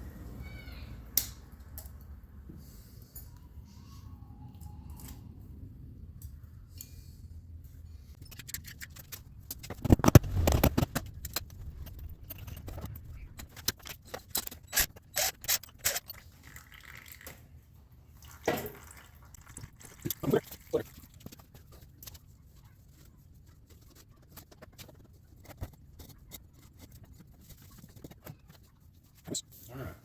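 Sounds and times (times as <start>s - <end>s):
metal tools clinking and scraping: 8.2s - 16.2s.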